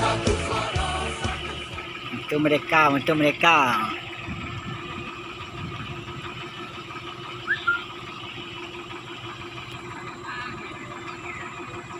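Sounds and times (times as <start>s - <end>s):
boat engine humming: 0.0s - 11.9s
short high chirps: 7.4s - 7.9s.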